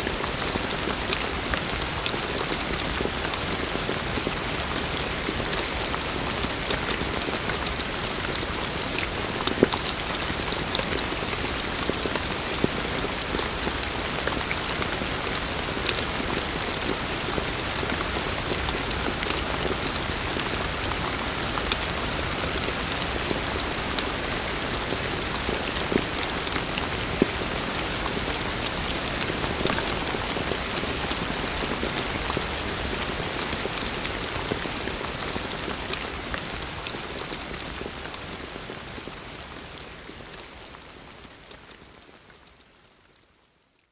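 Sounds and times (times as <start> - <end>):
heavy rain falling: 0.0 - 42.4
raindrops pattering on surfaces: 0.0 - 43.8.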